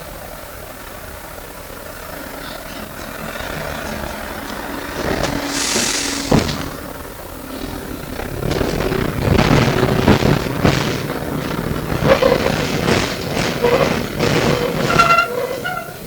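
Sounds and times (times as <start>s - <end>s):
tram rumble: 0.0s - 16.0s
wheels clattering on track: 0.0s - 16.0s
air hiss: 3.5s - 16.0s
sharp knock: 5.2s - 7.0s.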